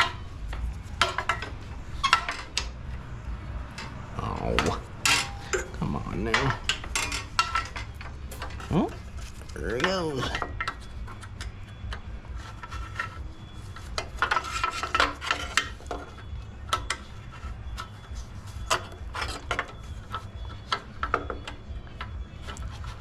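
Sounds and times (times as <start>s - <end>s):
steady low hum: 0.0s - 14.1s
metal tools clicking and scraping: 3.7s - 23.0s.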